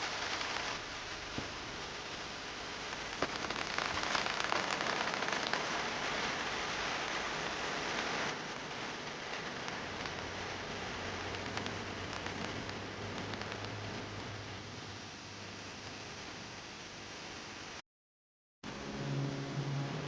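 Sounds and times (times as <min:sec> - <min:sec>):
raindrops striking sharply: 0:00.0 - 0:14.4
steady rain falling: 0:00.0 - 0:17.8, 0:18.7 - 0:20.0.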